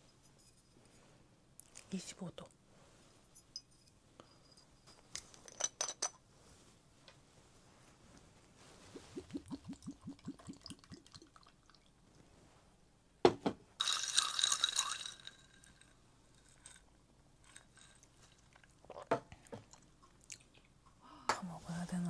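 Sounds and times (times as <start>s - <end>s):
liquid glugging from bottle: 8.9s - 11.5s.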